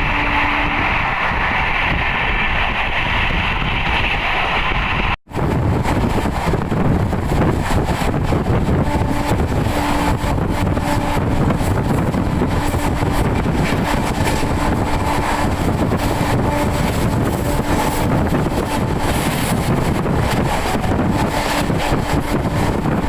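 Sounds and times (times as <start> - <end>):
train wheels rumbling on rails: 0.0 - 23.0
wind buffeting microphone: 0.0 - 23.0.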